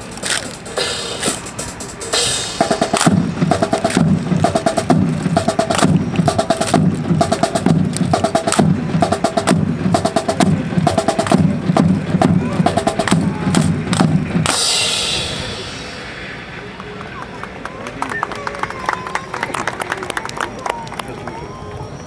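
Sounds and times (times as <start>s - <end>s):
scattered clicks: 0.0s - 1.4s
marching drum cadence: 0.0s - 17.0s.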